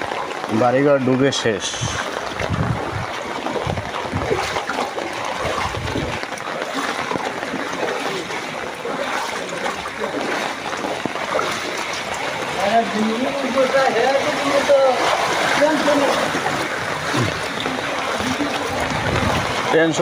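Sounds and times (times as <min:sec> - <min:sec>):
splashing floodwater and rain: 0:00.0 - 0:20.0
low rumbles: 0:01.7 - 0:09.1, 0:15.2 - 0:19.8.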